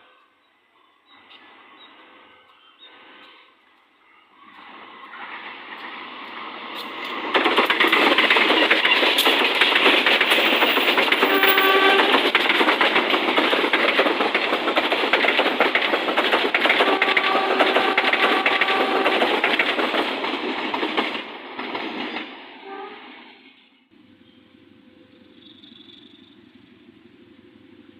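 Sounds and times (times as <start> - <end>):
train wheels rushing on rails: 1.2 - 27.9
train horn blasts: 11.2 - 12.4, 16.8 - 19.4, 22.6 - 23.2.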